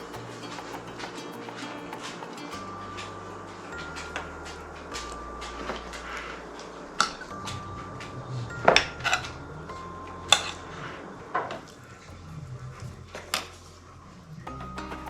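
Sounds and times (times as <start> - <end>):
utensils clinking against dishes: 0.0 - 2.6.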